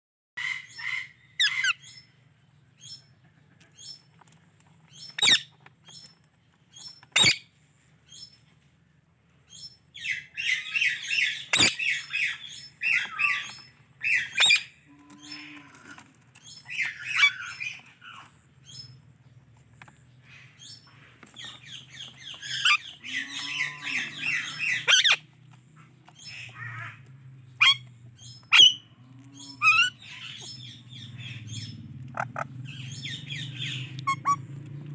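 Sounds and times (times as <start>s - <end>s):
parakeet chirping and chattering: 0.4s - 2.1s, 4.8s - 7.5s, 9.5s - 15.6s, 16.4s - 34.9s
parakeet squawks: 5.2s - 5.4s, 10.0s - 14.7s, 16.7s - 18.2s, 22.4s - 25.2s, 27.6s - 27.8s, 28.5s - 28.8s, 29.4s - 34.4s.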